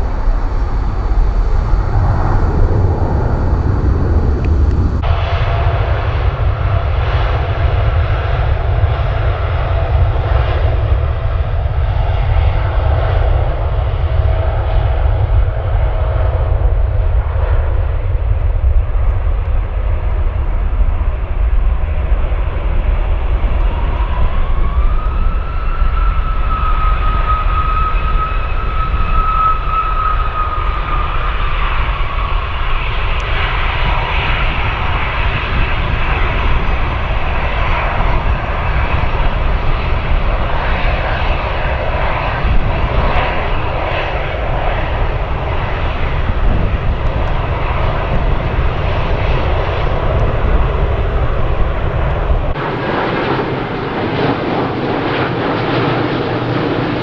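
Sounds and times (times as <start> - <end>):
rising engine whine: 0.0 - 5.1, 23.3 - 57.0
steady low rumble: 0.0 - 5.1, 31.6 - 57.0
jet airliner engines: 0.0 - 57.0.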